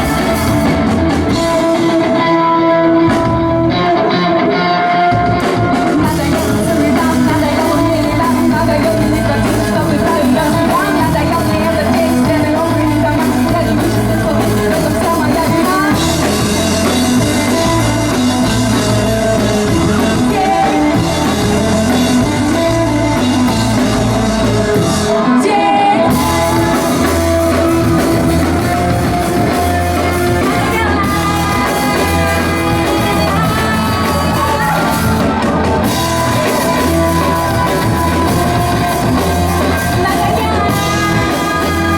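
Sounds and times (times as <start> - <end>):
live rock band playing: 0.0 - 41.9
person singing: 0.0 - 41.9.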